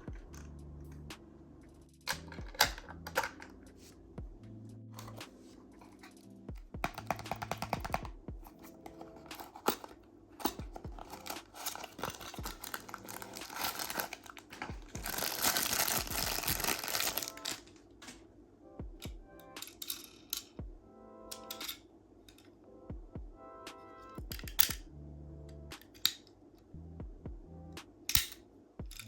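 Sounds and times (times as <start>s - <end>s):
small clicks and taps: 6.8s - 8.1s
packaging crinkling and tearing: 8.6s - 17.7s.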